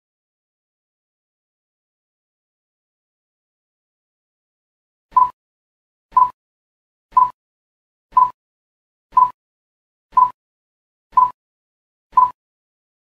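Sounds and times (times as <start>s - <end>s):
countdown timer beeps: 5.1s - 5.4s, 6.1s - 6.4s, 7.1s - 7.4s, 8.1s - 8.4s, 9.2s - 9.4s, 10.2s - 10.4s, 11.2s - 11.4s, 12.2s - 12.4s.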